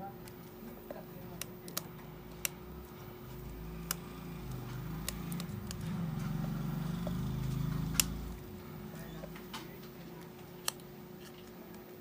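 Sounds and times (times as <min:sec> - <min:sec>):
sharp small clicks: 0:03.8 - 0:06.4, 0:07.4 - 0:08.4, 0:10.6 - 0:10.9.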